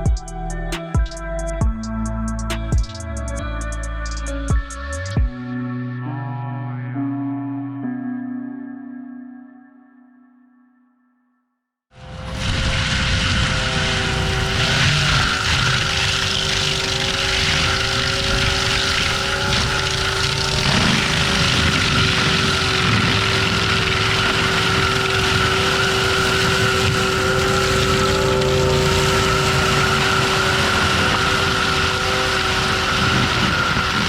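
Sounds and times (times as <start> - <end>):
diesel engine drone: 12.0 - 34.0
whine of spinning mulcher head: 12.0 - 34.0.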